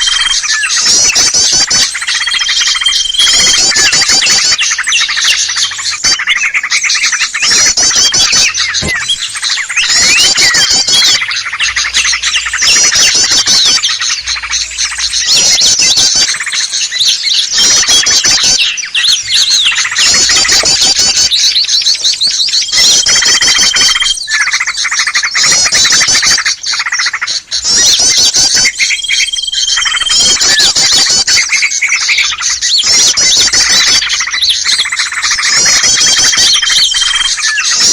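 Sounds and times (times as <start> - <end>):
steady whistle: 0.0 - 16.4
chorus of small songbirds trilling: 0.0 - 37.9.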